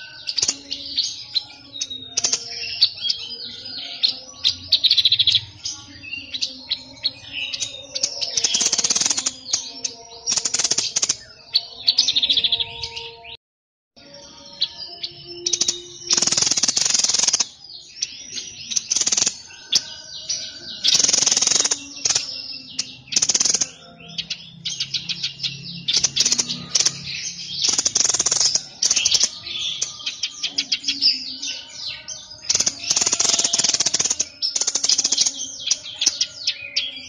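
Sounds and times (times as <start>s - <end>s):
songbird singing: 0.0s - 13.4s, 14.0s - 37.0s
harsh rasping bird calls: 15.4s - 36.8s.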